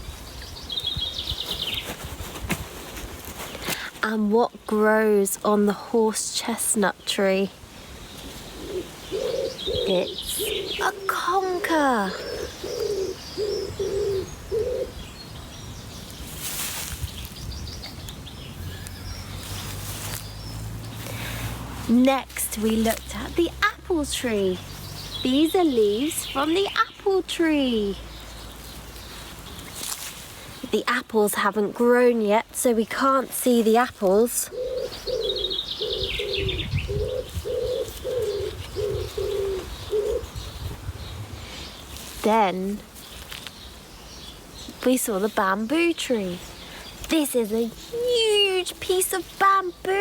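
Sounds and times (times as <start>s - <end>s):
small bird chirping: 8.1s - 16.4s, 34.5s - 41.9s
pigeon cooing: 8.4s - 15.0s, 34.5s - 40.4s.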